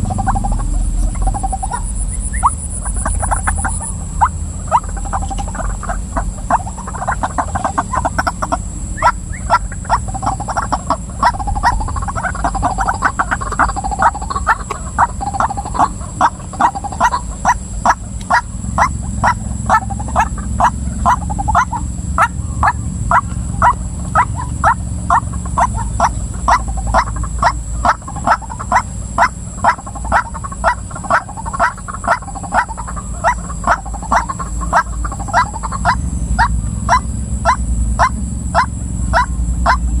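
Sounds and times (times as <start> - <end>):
steady low hum: 0.0 - 40.0
waterhen calling: 0.0 - 40.0.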